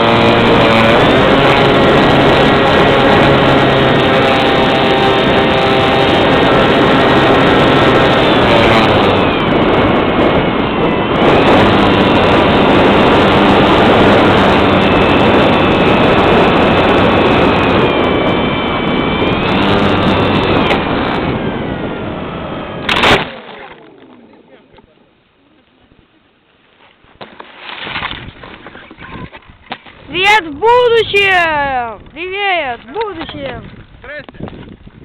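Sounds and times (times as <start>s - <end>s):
engine running loudly: 0.0s - 25.0s
wind noise: 0.0s - 26.3s, 27.0s - 35.0s.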